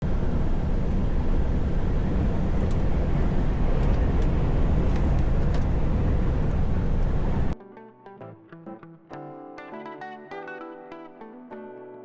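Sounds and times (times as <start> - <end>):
truck engine and road noise: 0.0 - 7.6.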